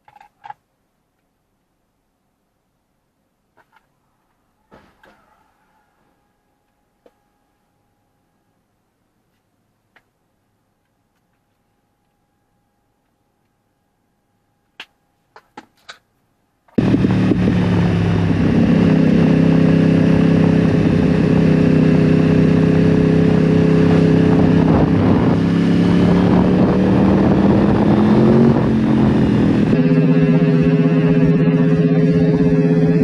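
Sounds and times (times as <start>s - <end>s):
motorcycle engine running: 16.8s - 33.0s.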